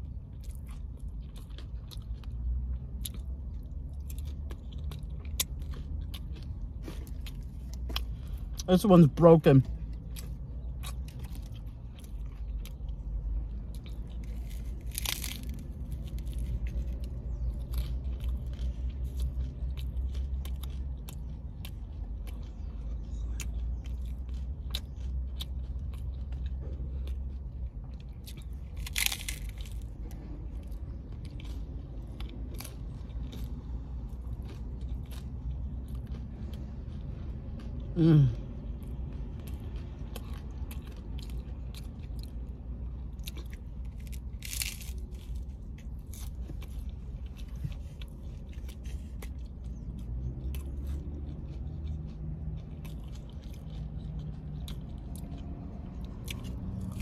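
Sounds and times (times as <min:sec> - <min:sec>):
crunching hard-shell taco: 0:00.0 - 0:57.0
person saying mm: 0:38.0 - 0:38.4.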